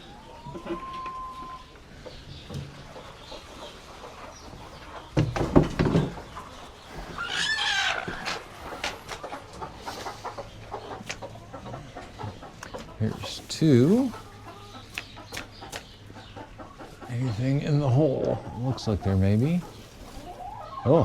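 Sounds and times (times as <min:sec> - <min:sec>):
chicken drawn-out call: 0:00.0 - 0:01.9, 0:06.9 - 0:12.4
chickens clucking: 0:00.0 - 0:21.0
clatter of knocks: 0:05.2 - 0:06.3.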